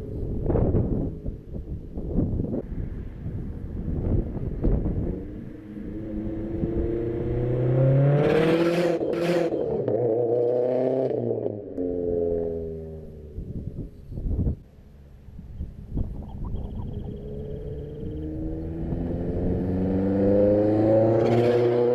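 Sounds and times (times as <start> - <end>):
car engine revving: 4.7 - 13.5, 17.1 - 21.9.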